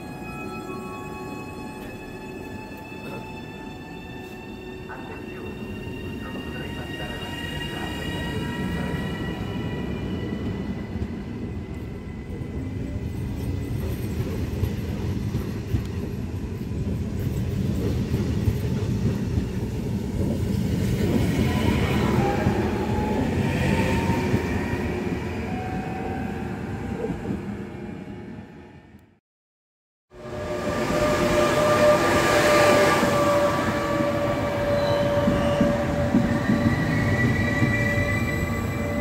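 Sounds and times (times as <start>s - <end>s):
train wheels rumbling on rail: 6.3s - 25.2s, 30.2s - 39.0s.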